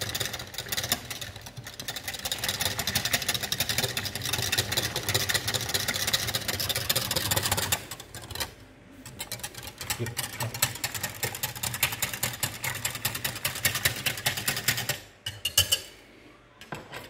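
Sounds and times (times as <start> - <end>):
spoon clinking and scraping jug: 15.2 - 16.0.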